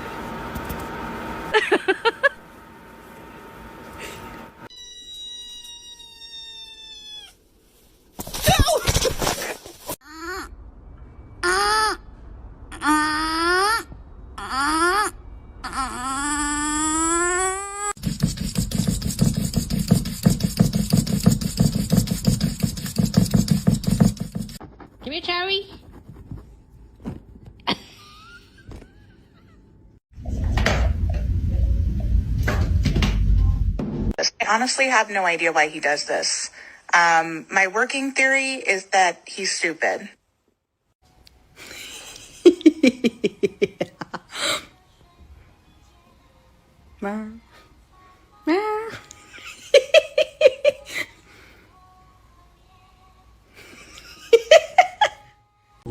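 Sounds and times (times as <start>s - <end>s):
person laughing: 1.5s - 2.4s, 27.6s - 29.7s, 41.6s - 44.7s, 49.0s - 51.2s, 53.6s - 55.2s
cat meowing: 4.7s - 7.4s.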